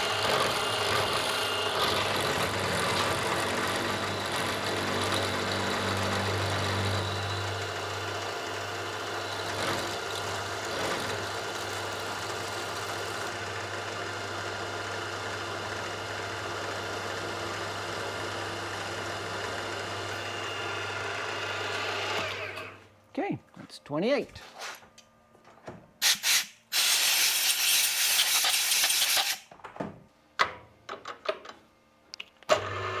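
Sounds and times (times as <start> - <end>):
workshop machine motor humming: 0.0 - 22.9.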